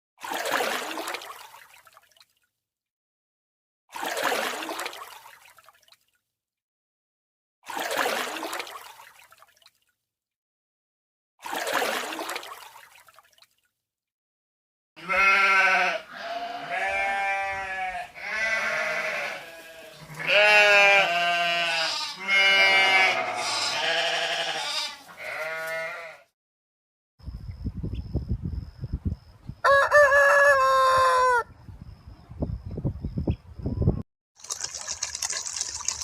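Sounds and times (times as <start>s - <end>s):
farm animal bleating: 15.0s - 26.3s.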